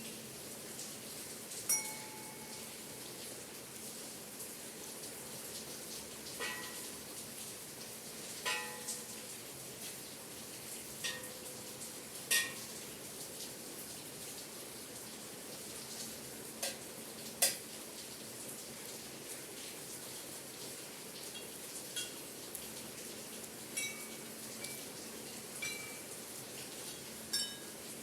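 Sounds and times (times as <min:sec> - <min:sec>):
steady rain hiss: 0:00.0 - 0:28.0
small bells clinking: 0:01.7 - 0:02.6.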